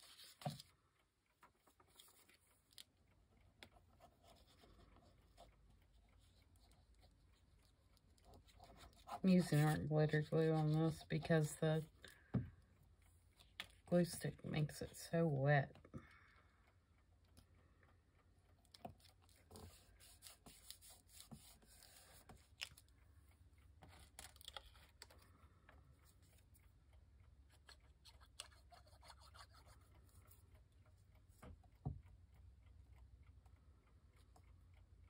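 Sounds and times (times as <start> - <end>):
paper rustling: 0.0 - 0.7.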